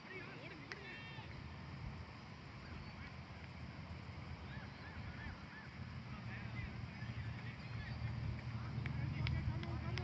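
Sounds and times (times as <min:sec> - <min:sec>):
low outdoor rumble: 0:00.0 - 0:10.0
bird calling: 0:02.5 - 0:03.4, 0:04.3 - 0:08.3.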